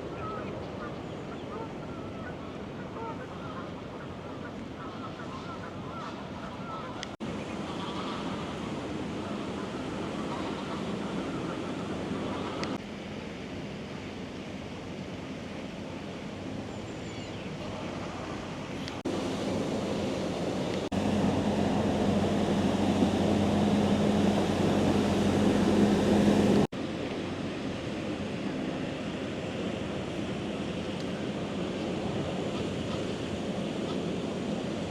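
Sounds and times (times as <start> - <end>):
street noise: 17.7 - 26.7
low engine hum: 18.8 - 27.3.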